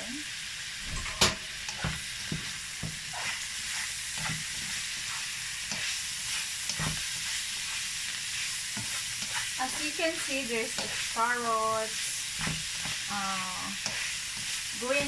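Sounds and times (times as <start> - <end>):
food sizzling in a frying pan: 0.0 - 15.0
spatula scraping and knocking pan: 1.2 - 7.8, 8.4 - 13.1.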